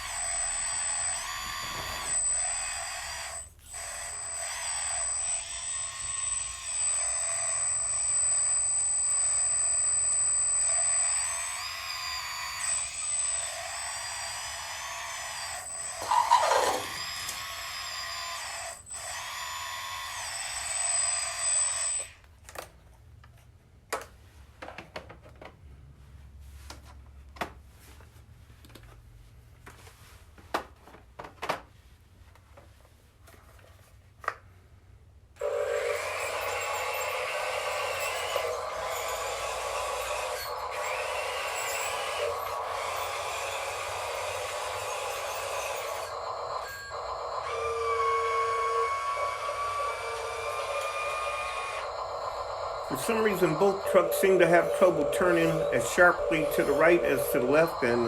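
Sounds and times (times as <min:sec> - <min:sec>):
small electric motors whining: 0:00.0 - 0:22.2, 0:35.4 - 0:58.0.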